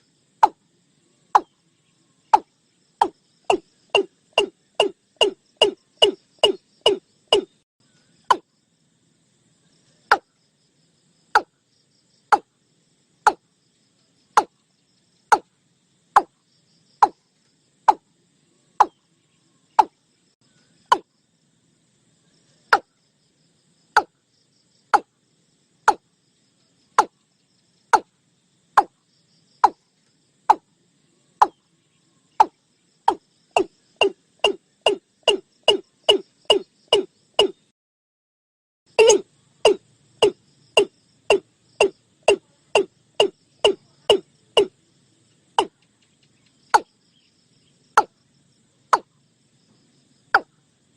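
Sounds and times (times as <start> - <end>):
bird calling hollow notes: 1.4 - 1.6, 2.3 - 7.6, 8.2 - 8.5, 19.8 - 20.0, 20.8 - 21.1, 32.4 - 37.7, 39.0 - 44.7.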